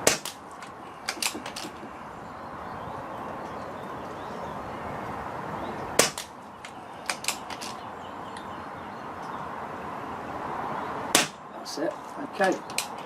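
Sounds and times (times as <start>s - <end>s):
air rifle shot crack: 6.0s - 6.3s.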